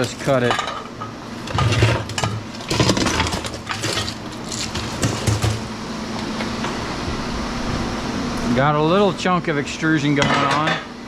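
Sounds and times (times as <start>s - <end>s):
aluminum pieces clanking: 0.0s - 5.7s
low hum: 5.8s - 10.1s.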